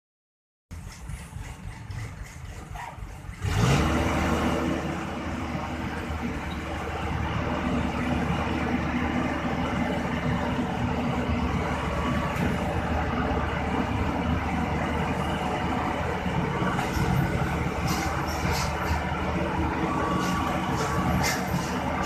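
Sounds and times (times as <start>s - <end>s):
heavy engine running: 0.7s - 22.0s
short high-pitched squeaks: 20.0s - 21.9s.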